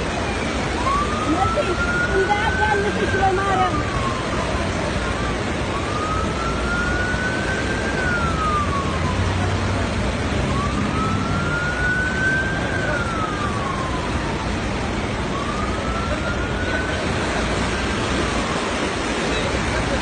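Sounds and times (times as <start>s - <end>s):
emergency siren wailing: 0.0s - 20.0s
steady rushing noise: 0.0s - 20.0s.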